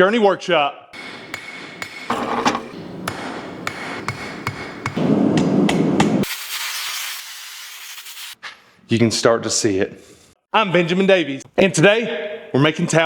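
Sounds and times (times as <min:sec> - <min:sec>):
hammer striking steel on anvil: 0:01.0 - 0:06.2
high hiss: 0:06.2 - 0:08.4.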